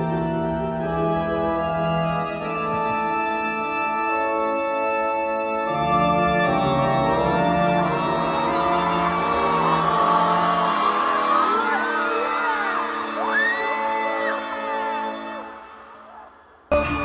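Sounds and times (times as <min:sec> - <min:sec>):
organ keyboard chords: 0:00.0 - 0:15.6
crowd screaming: 0:06.0 - 0:17.0.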